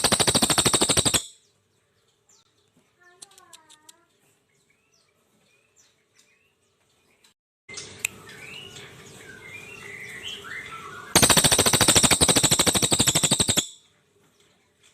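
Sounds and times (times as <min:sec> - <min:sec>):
jay rapid pulsed rattle: 0:00.0 - 0:01.4, 0:11.2 - 0:13.8
bird chirps and whistles: 0:08.1 - 0:13.8.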